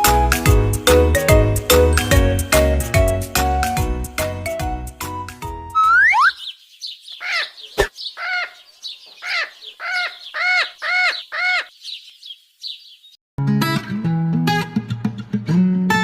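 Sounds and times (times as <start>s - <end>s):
bird twittering chatter: 5.8s - 13.2s
short arched bird chirps: 5.8s - 13.2s
guitar music: 13.4s - 16.0s.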